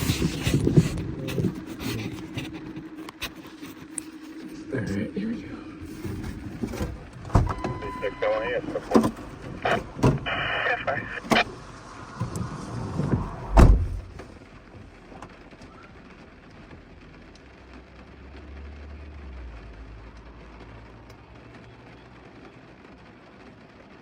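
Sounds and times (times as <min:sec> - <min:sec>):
low hum: 0:00.0 - 0:15.2
rain hissing: 0:00.0 - 0:24.0
heavy thump: 0:12.2 - 0:14.2.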